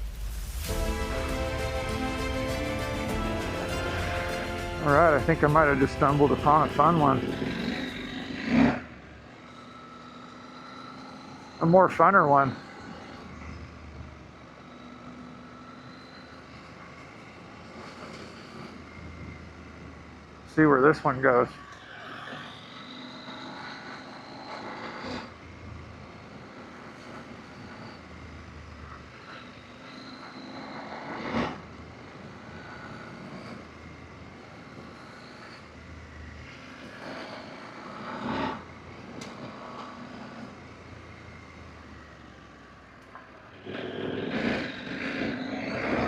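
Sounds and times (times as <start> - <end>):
motorcycle engine rumbling: 0.0 - 21.2.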